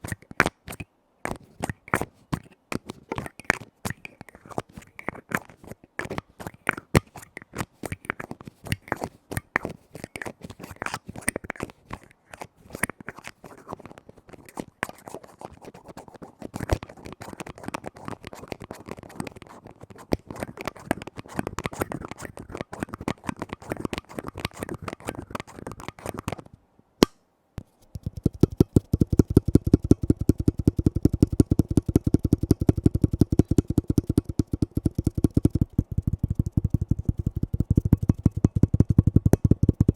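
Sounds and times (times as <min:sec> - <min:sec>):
tapping on lids: 0:27.9 - 0:39.9.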